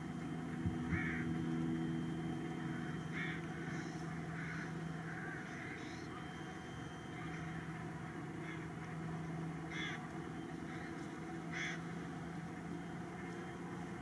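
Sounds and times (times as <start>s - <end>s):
steady low hum: 0.0s - 14.0s
crows cawing: 0.9s - 1.4s, 2.6s - 6.3s, 7.1s - 9.0s, 9.6s - 13.6s.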